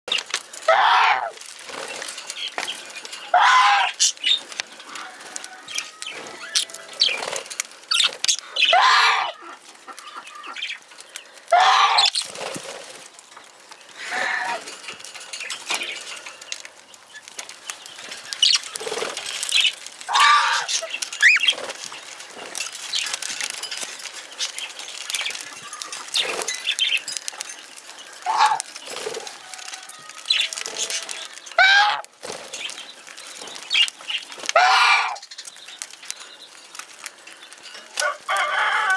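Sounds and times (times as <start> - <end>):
budgies chirping: 5.7 - 12.6, 15.4 - 23.6, 24.2 - 29.3, 30.2 - 37.6.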